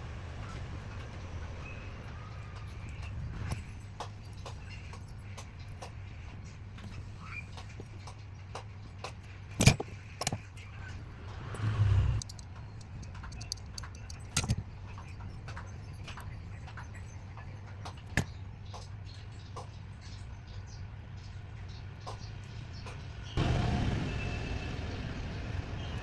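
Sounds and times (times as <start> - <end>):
small hard parts and tools clicking: 2.5 - 19.9.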